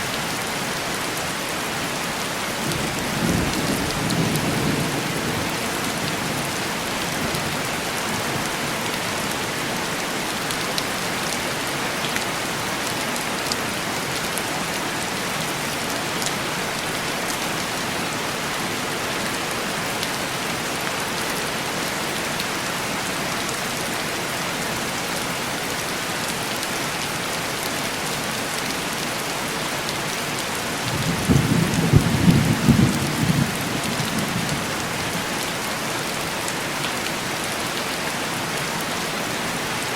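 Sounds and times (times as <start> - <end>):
heavy rain on window: 29.6 - 39.9.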